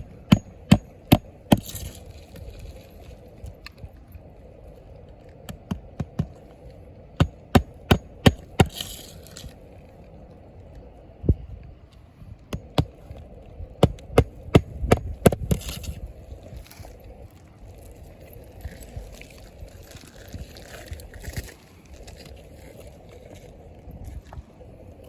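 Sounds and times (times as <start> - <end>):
hammer driving nails into shingles: 0.0 - 1.9, 7.2 - 8.9, 13.8 - 15.7.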